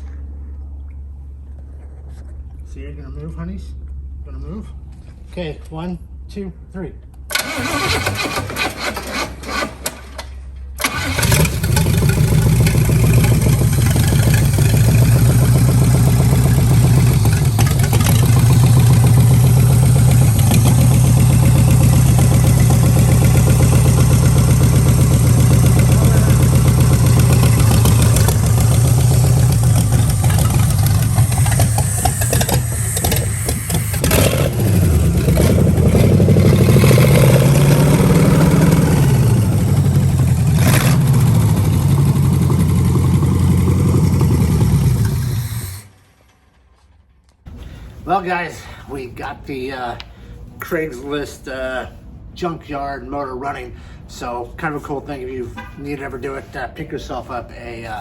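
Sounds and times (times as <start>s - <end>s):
car engine cranking and running: 7.1s - 47.4s.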